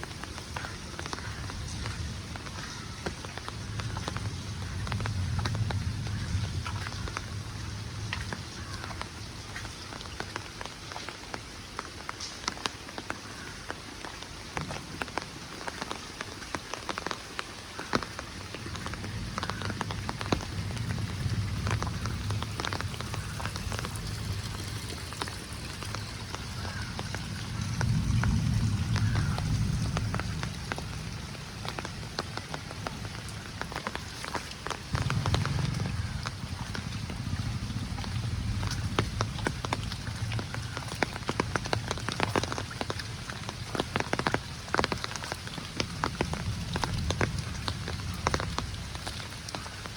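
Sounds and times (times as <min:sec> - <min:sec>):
rain falling: 0:00.0 - 0:49.9
sharp raindrop taps: 0:00.0 - 0:49.9
low rumble: 0:34.9 - 0:39.3.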